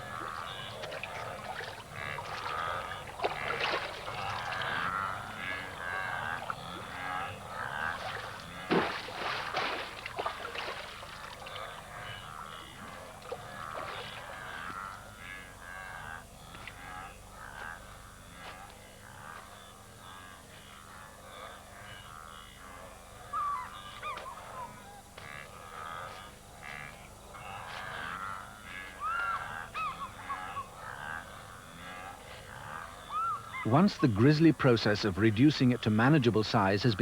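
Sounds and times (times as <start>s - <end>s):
water splashing and churning: 0.0s - 14.7s
chorus of animal calls: 0.0s - 37.0s
loud splash: 8.0s - 11.4s.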